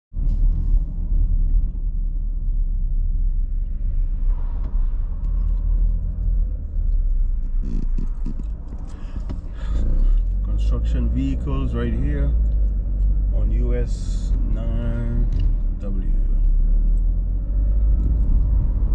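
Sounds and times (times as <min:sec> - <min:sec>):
vehicle engine and road noise: 0:00.1 - 0:18.9.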